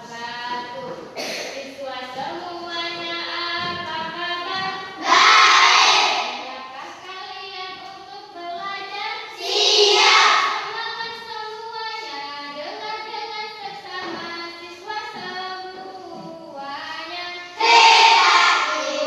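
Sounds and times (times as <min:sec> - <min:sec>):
children singing: 0:04.6 - 0:06.4, 0:09.4 - 0:10.8, 0:17.5 - 0:19.0.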